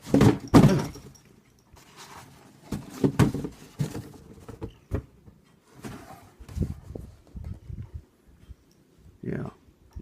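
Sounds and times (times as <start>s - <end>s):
cardboard box knocks and thumps: 0.0s - 1.0s, 2.7s - 5.1s
cardboard scraping and rustling: 1.8s - 5.1s, 5.7s - 7.2s.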